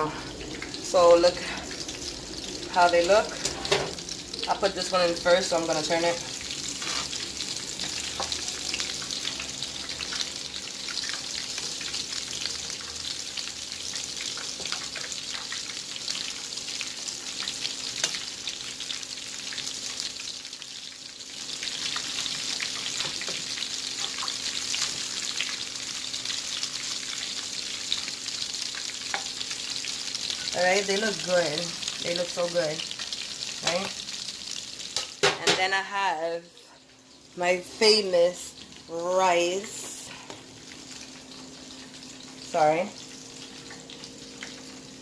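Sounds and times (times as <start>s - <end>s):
chicken deep-frying in oil: 0.0s - 45.0s.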